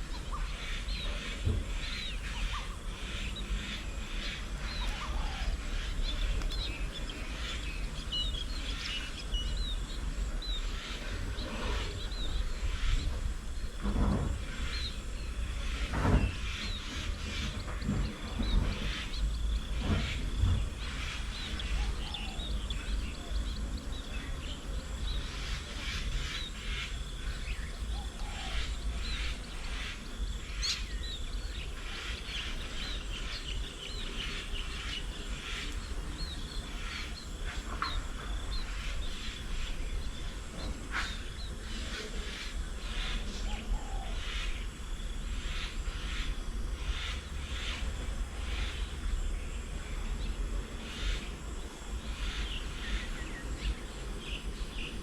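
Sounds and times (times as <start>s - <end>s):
birds chirping and calling: 0.0s - 55.0s
low bumps: 5.7s - 26.3s.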